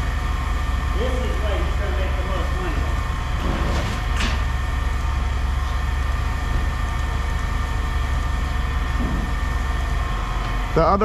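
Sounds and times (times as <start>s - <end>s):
low mechanical rumble: 0.0s - 11.0s.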